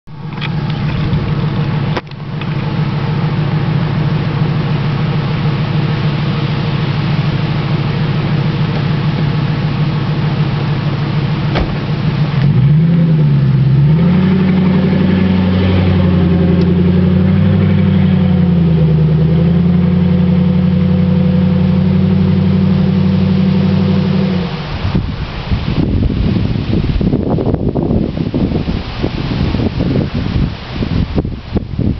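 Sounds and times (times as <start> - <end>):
loud car engine idling and revving: 0.0 - 31.9.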